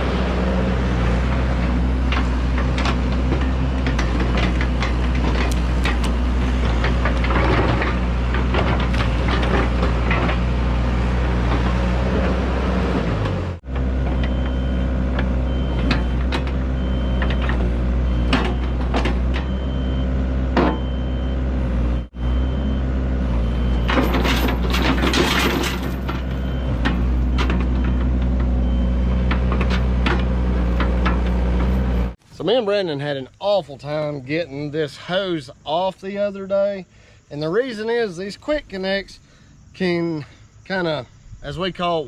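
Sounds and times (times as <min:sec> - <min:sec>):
diesel engine idling: 0:00.0 - 0:32.2
clicks and knocks: 0:02.0 - 0:10.5.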